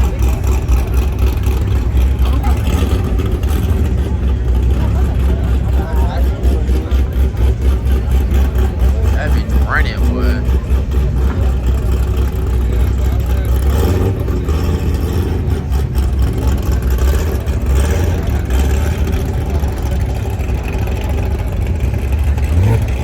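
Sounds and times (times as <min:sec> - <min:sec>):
background voices: 0:00.0 - 0:23.0
car engine and exhaust rumbling: 0:00.0 - 0:23.0.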